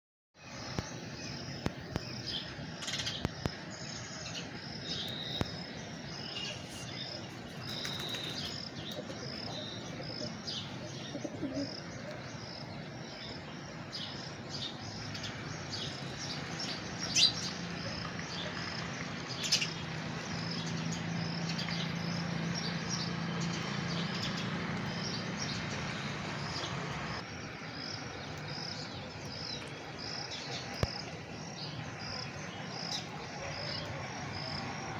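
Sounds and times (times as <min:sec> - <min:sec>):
birds chirping and calling: 0:00.7 - 0:27.2.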